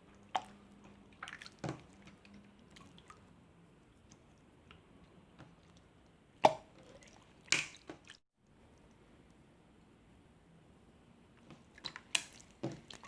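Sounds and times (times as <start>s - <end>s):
wet slime squelch: 0.0s - 8.2s, 11.4s - 13.0s.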